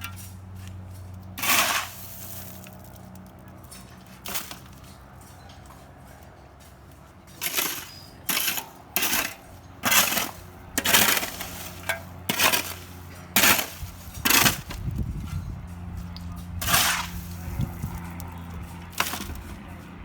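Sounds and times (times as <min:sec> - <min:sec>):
hand tool digging rubble: 0:00.0 - 0:02.9, 0:03.7 - 0:05.0, 0:07.3 - 0:15.1, 0:16.6 - 0:18.2, 0:18.9 - 0:19.6.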